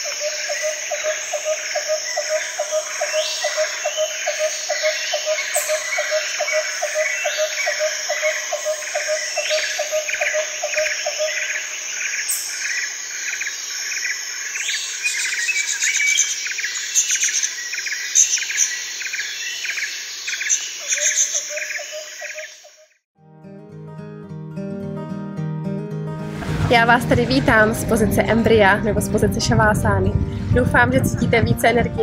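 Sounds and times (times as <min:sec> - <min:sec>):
birds chirping: 0:00.0 - 0:23.0
insects trilling: 0:00.0 - 0:23.0.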